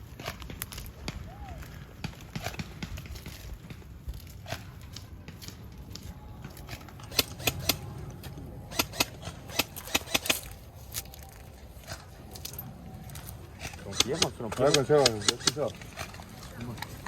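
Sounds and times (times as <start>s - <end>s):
airsoft gun shots: 7.0s - 10.6s.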